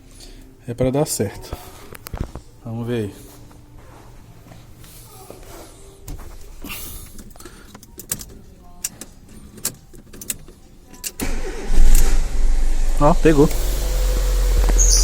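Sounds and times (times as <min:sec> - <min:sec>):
car engine starting and running: 0:11.2 - 0:15.0.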